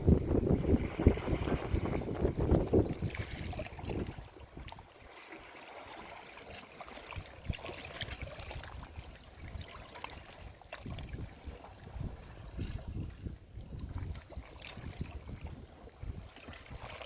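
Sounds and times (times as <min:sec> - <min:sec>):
waves rushing on shore: 0:00.0 - 0:04.1.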